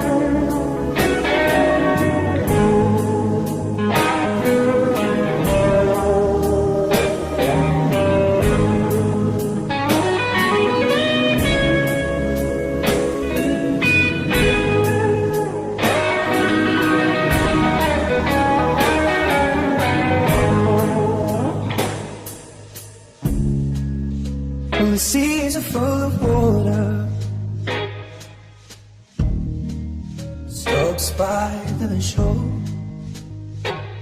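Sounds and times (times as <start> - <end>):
steady drum beat: 0.0 - 24.4, 26.2 - 27.3, 28.2 - 29.9
lead guitar solo: 0.0 - 25.2, 27.6 - 28.6, 33.6 - 34.0
bass guitar: 0.0 - 34.0.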